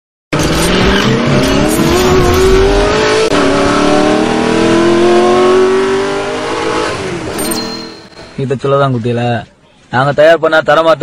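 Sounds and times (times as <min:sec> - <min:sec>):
car engine accelerating hard: 0:00.4 - 0:07.3.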